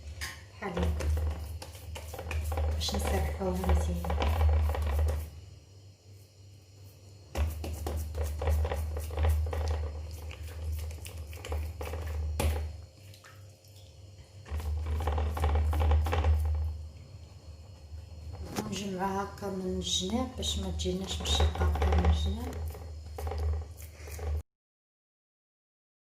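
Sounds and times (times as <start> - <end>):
hands patting dough in a pan: 0.6 - 5.4, 7.3 - 13.2, 14.4 - 17.0.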